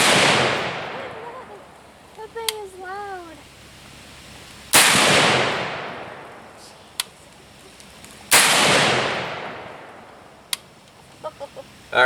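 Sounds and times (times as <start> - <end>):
echoing gunshots: 0.0 - 1.2, 4.7 - 6.6, 8.3 - 10.3.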